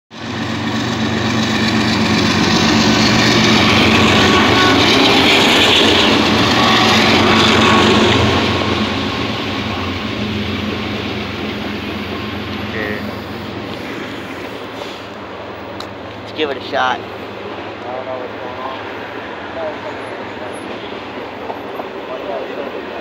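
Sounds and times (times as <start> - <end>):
diesel locomotive engine drone: 0.1 - 23.0
flatcars rumbling over rails: 0.1 - 23.0
train wheels on rails: 0.1 - 23.0.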